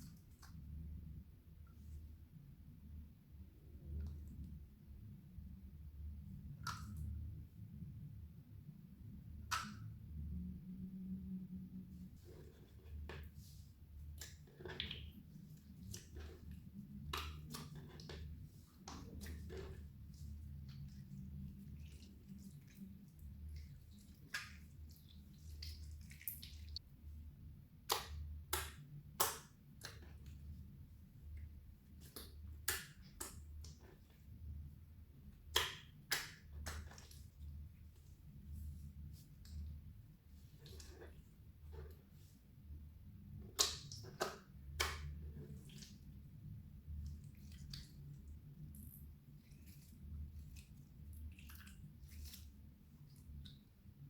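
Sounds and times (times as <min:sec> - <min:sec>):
low background hum: 0:00.0 - 0:54.0
slime squishing with sticky clicks: 0:27.8 - 0:30.4, 0:32.0 - 0:34.1, 0:35.3 - 0:37.2, 0:43.3 - 0:46.0.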